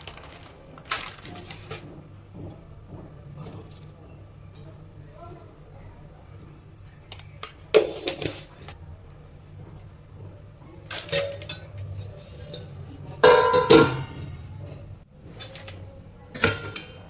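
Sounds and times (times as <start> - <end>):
metal utensils and pots clanging: 7.1 - 8.8, 9.5 - 17.0.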